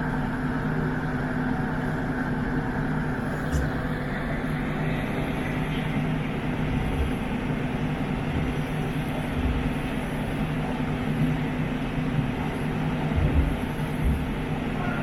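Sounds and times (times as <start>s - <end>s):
boat engine humming: 0.0s - 15.0s
low thuds: 13.2s - 14.4s.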